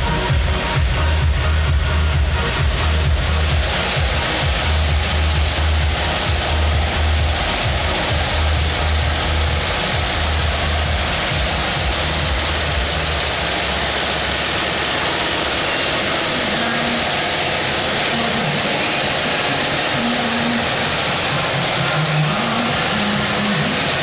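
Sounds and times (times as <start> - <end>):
embroidery machine clatter: 0.0 - 24.0
pulsing low rumble: 0.0 - 24.0.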